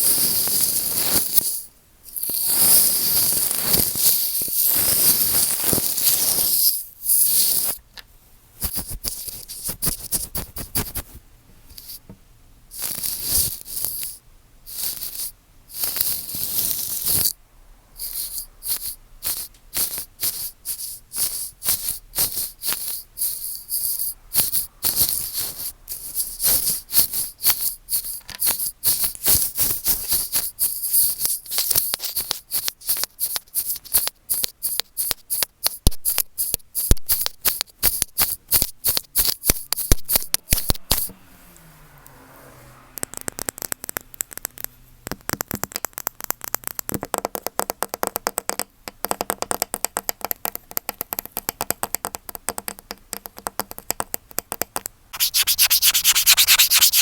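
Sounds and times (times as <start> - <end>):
microphone being scratched: 8.6 - 11.2, 39.8 - 41.1, 55.2 - 57.0.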